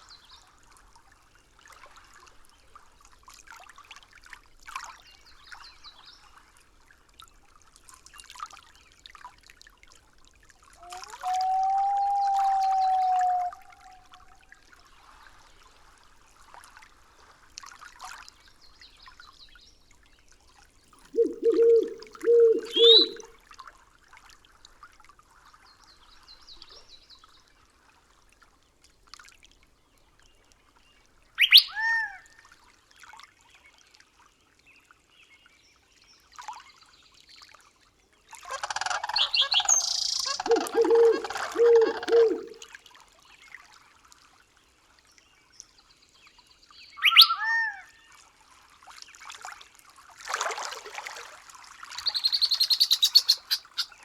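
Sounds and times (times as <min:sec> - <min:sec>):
birds chirping and whistling: 0:21.2 - 0:23.2, 0:39.0 - 0:42.6, 0:52.0 - 0:53.9
low hooting notes: 0:21.2 - 0:23.2, 0:40.3 - 0:42.6.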